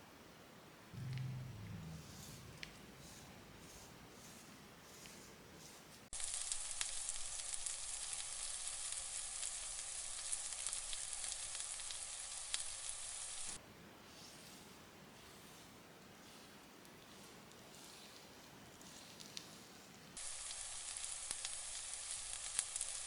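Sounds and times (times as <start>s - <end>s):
steady hiss with crackles: 0.0s - 23.0s.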